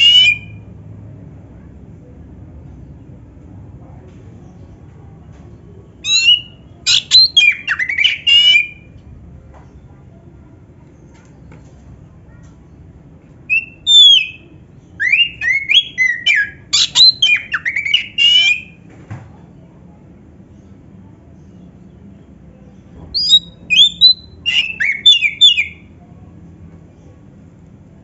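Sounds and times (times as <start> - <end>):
bird singing whistles and trills: 0.0 - 0.6, 6.0 - 8.9, 13.5 - 18.8, 23.1 - 25.9.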